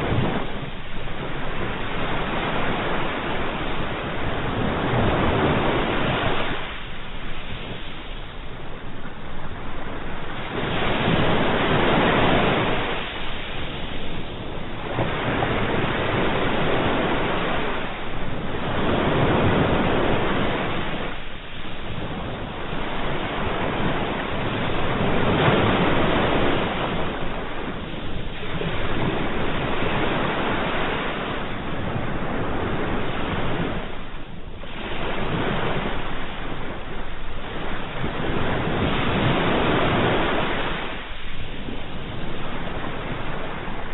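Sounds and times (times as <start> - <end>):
sea waves breaking: 0.0 - 43.9.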